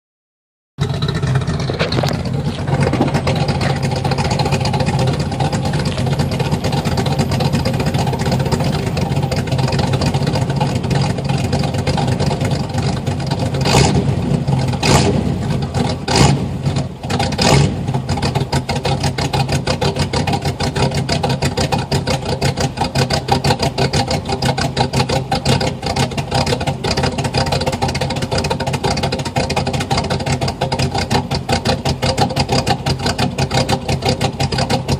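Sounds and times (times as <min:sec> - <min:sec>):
engine revving blips: 0:00.8 - 0:11.0, 0:13.4 - 0:20.9
engine idling with loping cam: 0:00.8 - 0:34.9.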